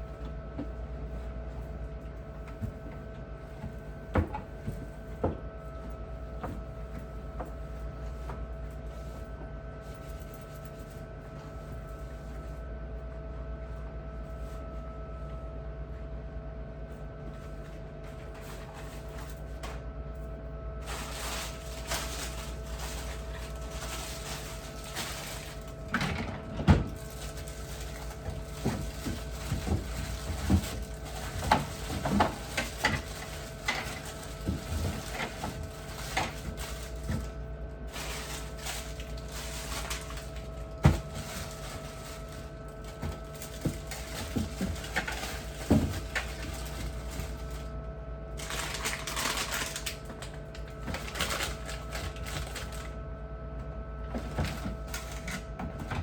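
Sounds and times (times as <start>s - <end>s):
steady electrical hum: 0.0s - 56.0s
objects knocking and clattering: 20.9s - 37.3s, 42.9s - 47.4s.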